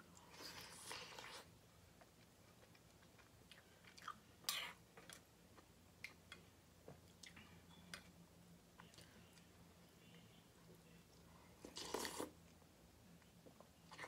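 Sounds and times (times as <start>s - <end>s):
person chewing food: 0.2s - 6.4s.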